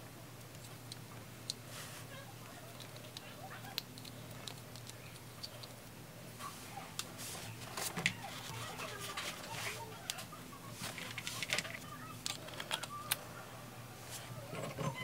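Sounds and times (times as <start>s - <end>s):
faint voice: 6.4s - 15.0s
plastic parts clicking: 10.9s - 13.2s.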